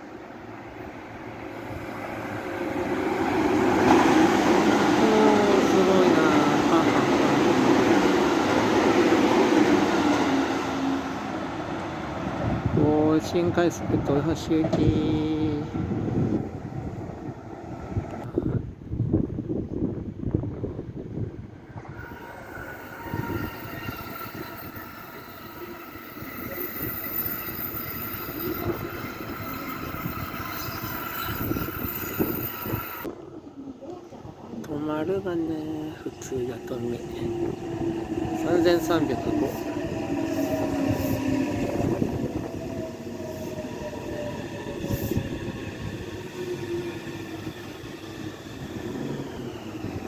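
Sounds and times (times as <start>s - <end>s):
train rumble: 0.6s - 50.0s
wheels rumbling on rails: 15.9s - 34.6s
wheel clicks or squeaks: 22.1s - 33.0s.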